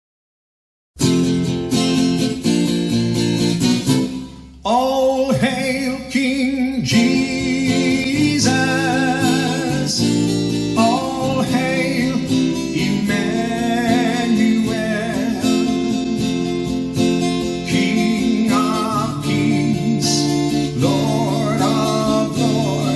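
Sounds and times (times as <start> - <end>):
acoustic guitar strumming: 1.0 - 22.9
person singing: 4.6 - 16.6, 17.2 - 22.9.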